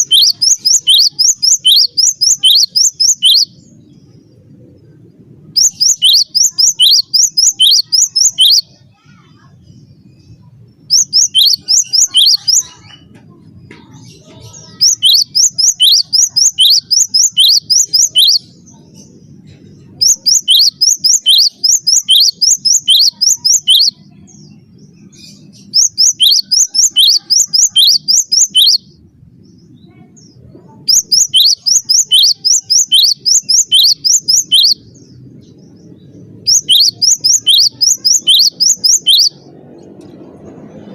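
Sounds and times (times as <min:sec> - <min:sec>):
bird singing sharp high notes: 0:00.0 - 0:03.6, 0:05.6 - 0:08.8, 0:10.9 - 0:12.8, 0:14.6 - 0:18.5, 0:20.0 - 0:24.1, 0:25.3 - 0:29.0, 0:30.9 - 0:35.2, 0:36.5 - 0:39.5.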